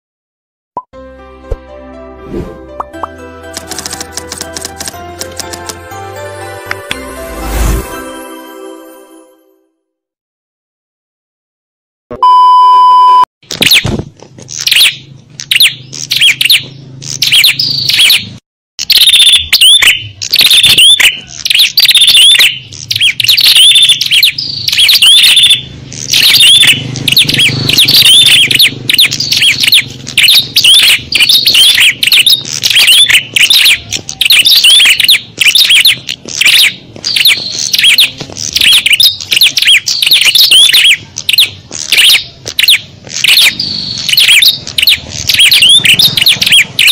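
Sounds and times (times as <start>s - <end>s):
small birds chirping and twittering: 14.5s - 18.4s, 19.5s - 46.9s.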